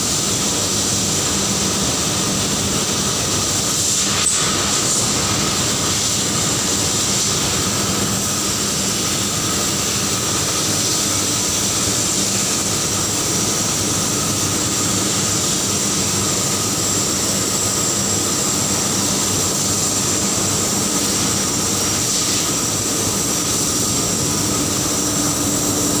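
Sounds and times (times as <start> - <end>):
loud steady industrial roar: 0.0 - 26.0
high whine: 16.4 - 26.0.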